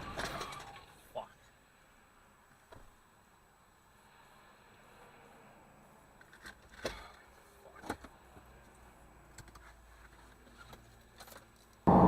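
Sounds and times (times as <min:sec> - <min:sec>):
car interior hum: 0:11.6 - 0:12.0.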